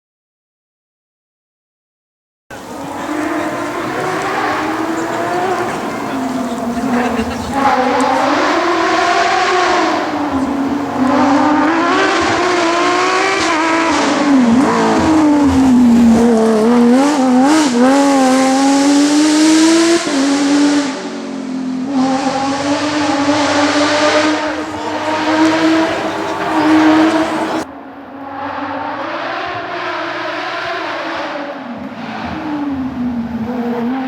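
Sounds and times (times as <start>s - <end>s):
rally car engine revving: 2.5s - 27.7s.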